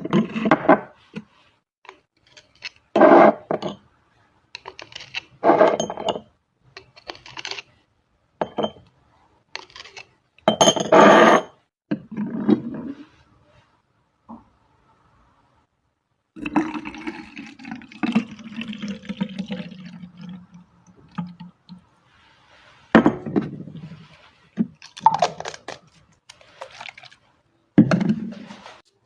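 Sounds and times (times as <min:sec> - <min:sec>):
water pouring into a bottle: 0:16.4 - 0:21.6, 0:24.8 - 0:27.2
liquid sloshing in shaken bottle: 0:24.7 - 0:27.3.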